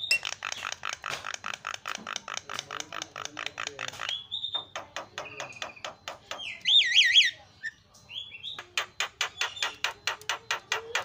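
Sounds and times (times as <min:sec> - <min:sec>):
myna bird singing: 0:00.0 - 0:11.0.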